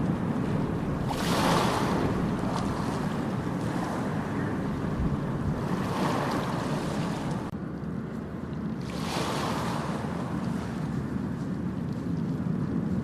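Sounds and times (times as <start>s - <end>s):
ocean waves breaking on beach: 0.0s - 7.6s, 8.3s - 13.0s
wind rumble on microphone: 0.0s - 13.0s.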